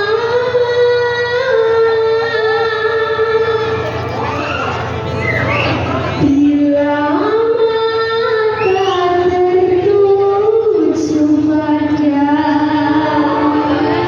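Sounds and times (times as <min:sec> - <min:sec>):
choir singing long notes: 0:12.9 - 0:14.0.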